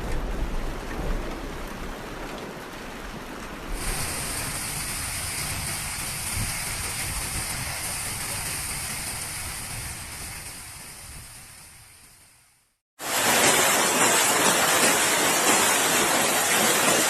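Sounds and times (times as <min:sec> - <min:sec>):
heavy rain hissing: 0:03.7 - 0:17.0.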